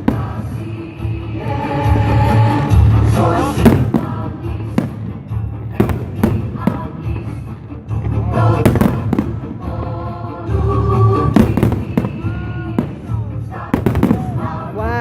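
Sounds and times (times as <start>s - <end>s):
music playing: 0.0s - 15.0s
fireworks bangs: 8.4s - 9.8s, 11.2s - 14.6s.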